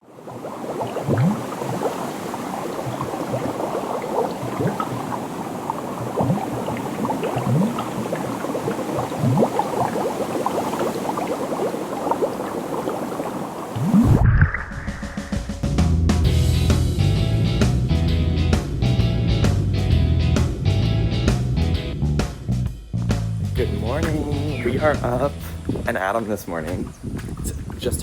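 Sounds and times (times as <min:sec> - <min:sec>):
water bubbling and gurgling: 0:00.0 - 0:15.4.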